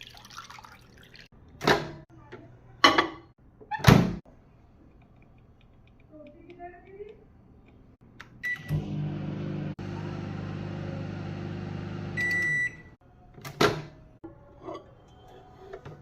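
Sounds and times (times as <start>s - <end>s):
microwave keypad beep: 8.4s - 8.8s, 12.1s - 13.0s
microwave beep: 8.4s - 9.6s, 10.7s - 13.0s
microwave oven humming: 8.4s - 13.0s.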